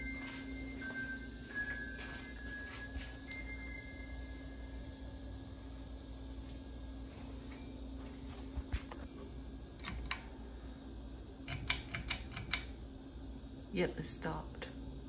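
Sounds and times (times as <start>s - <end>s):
fan motor humming: 0.0s - 15.0s
sharp clicks: 9.8s - 10.3s, 11.5s - 12.7s.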